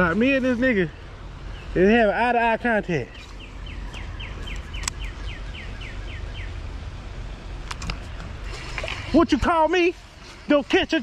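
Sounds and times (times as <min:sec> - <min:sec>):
bird chirping: 0:00.5 - 0:08.4
sharp clicks: 0:03.3 - 0:05.1.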